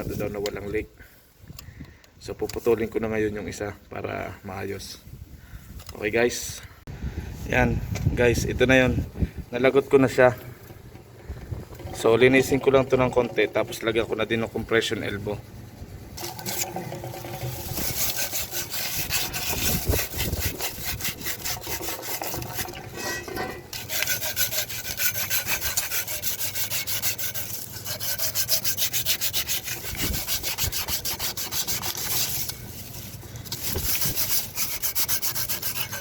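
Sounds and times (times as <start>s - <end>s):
rubbing strokes on copper pipe: 16.2s - 36.0s.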